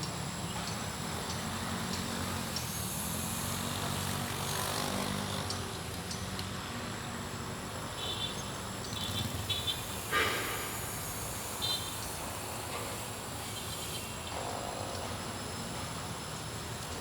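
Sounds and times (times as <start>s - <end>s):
toy plane electric motors: 1.4s - 6.5s.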